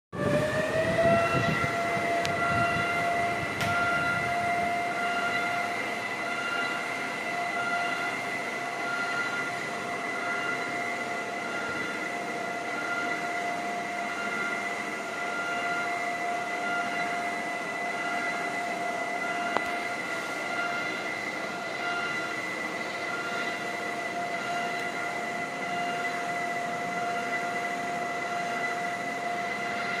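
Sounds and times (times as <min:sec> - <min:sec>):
treadmill whining and humming: 0:00.1 - 0:30.0.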